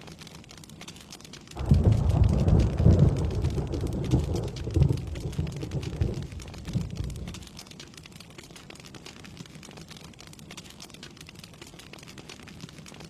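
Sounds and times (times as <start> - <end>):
rain pattering: 0.0 - 13.0
rolling thunder rumble: 1.6 - 7.5.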